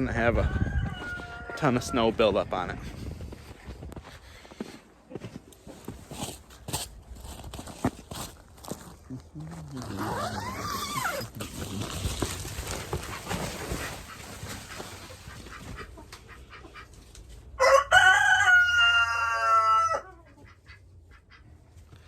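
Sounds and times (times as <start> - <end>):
rooster crowing: 0.3 - 2.2, 17.6 - 20.2
rustling: 5.6 - 16.2.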